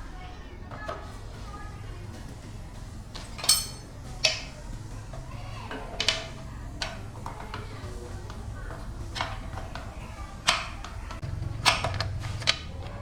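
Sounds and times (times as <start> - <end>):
metal tools clinking: 3.2 - 4.5.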